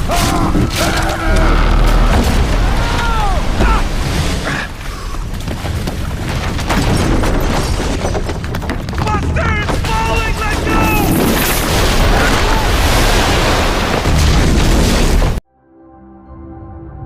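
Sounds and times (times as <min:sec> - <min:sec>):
structure crashing: 0:00.0 - 0:15.4
rushing water: 0:01.5 - 0:05.2, 0:11.3 - 0:14.7.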